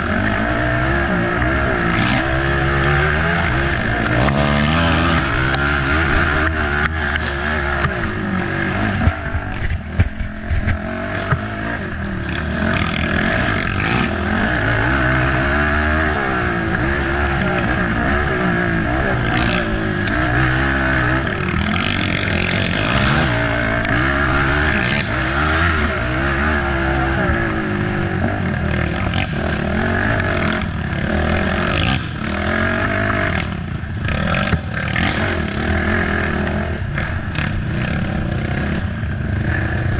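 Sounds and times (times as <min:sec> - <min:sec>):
atv engine revving: 0:00.0 - 0:39.9
knocks and clatter: 0:08.9 - 0:11.5.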